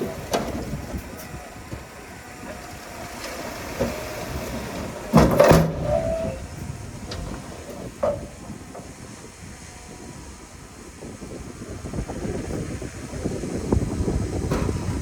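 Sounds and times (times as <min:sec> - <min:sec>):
metal clanking and hiss: 0:00.0 - 0:09.3, 0:14.3 - 0:15.0
heavy earthmoving machinery running: 0:00.0 - 0:15.0.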